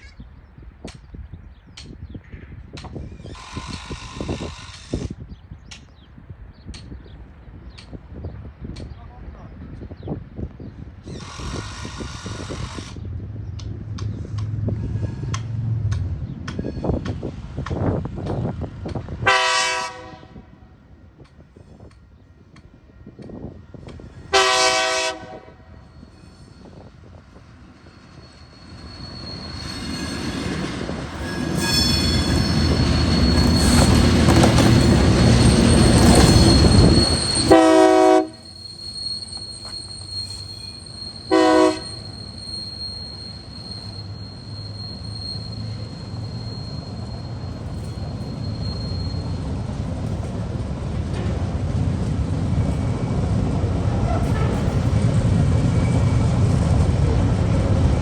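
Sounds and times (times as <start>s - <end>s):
wheels squealing on rails: 2.2s - 5.5s, 9.9s - 20.1s, 20.8s - 58.0s
rumble of passing wagons: 9.6s - 19.3s, 25.7s - 58.0s
train horn blast: 19.2s - 20.8s, 24.3s - 25.9s, 37.4s - 38.4s, 41.3s - 42.0s
locomotive engine noise: 20.3s - 58.0s.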